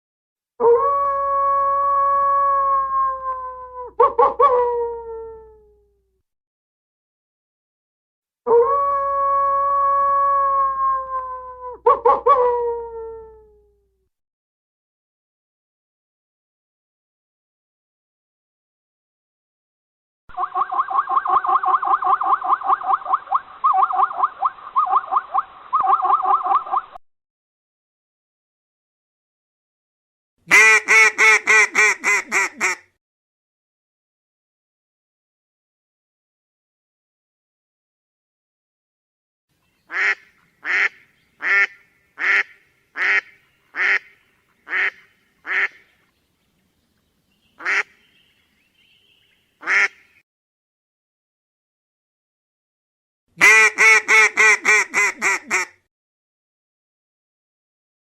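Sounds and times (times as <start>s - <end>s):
peafowl honking calls: 20.4s - 26.8s, 47.6s - 48.2s, 49.6s - 50.1s, 53.4s - 55.6s.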